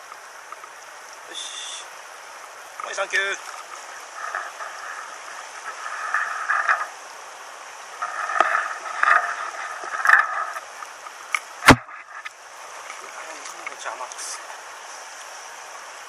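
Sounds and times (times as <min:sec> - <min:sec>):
small stream running: 0:00.0 - 0:16.0
water sloshing: 0:02.2 - 0:14.2
sharp knock: 0:11.6 - 0:12.0.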